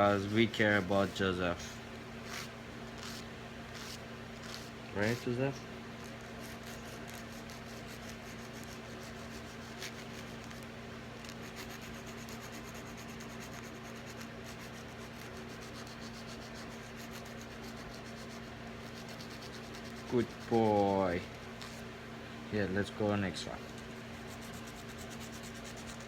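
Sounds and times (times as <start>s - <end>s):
fans humming: 0.0s - 26.0s
nail file rasping: 2.2s - 5.3s, 6.0s - 20.8s, 23.7s - 26.0s.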